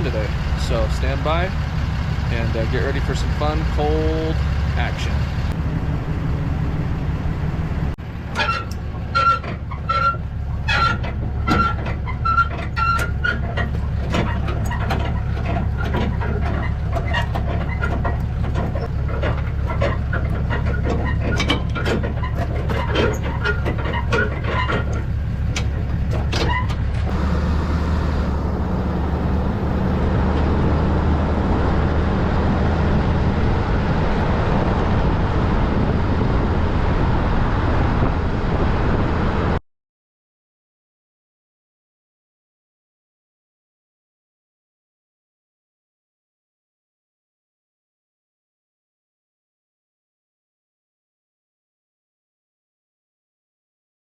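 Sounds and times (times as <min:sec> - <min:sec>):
truck engine and road rumble: 0:00.0 - 0:39.6.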